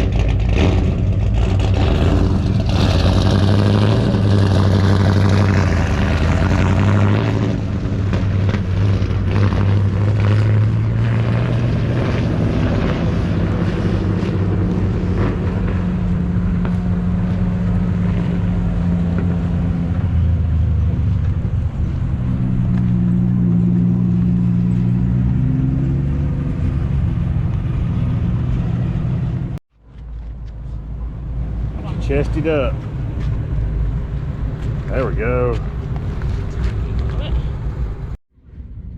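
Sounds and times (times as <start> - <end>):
vehicle engine running: 0.0 - 38.9.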